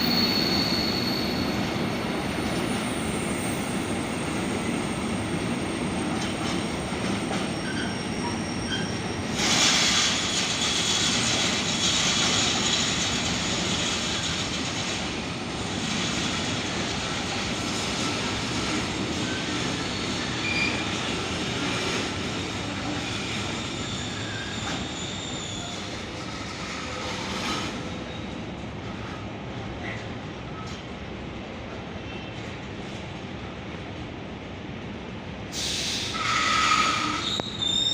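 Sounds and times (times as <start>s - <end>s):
wheels squealing on rails: 0.0s - 30.9s, 35.6s - 37.9s
train rail noise: 0.0s - 37.9s.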